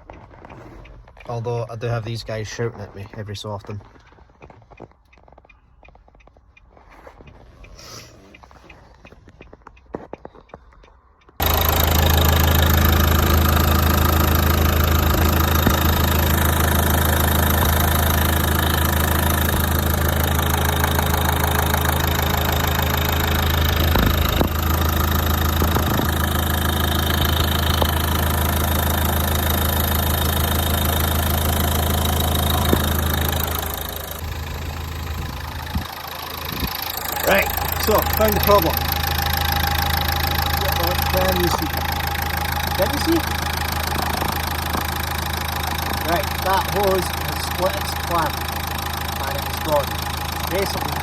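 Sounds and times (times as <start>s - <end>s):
vehicle engine idling: 11.2s - 51.0s.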